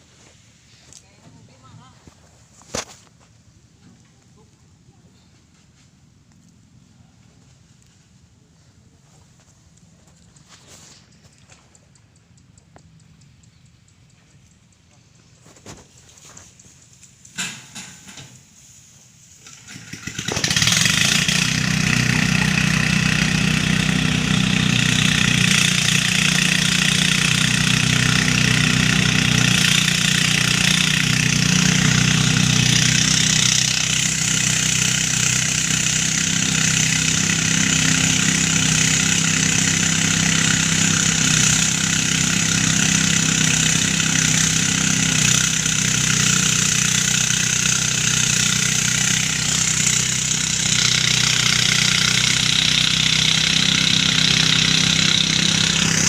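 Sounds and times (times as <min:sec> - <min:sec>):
rice thresher engine running: 0:14.2 - 0:56.0.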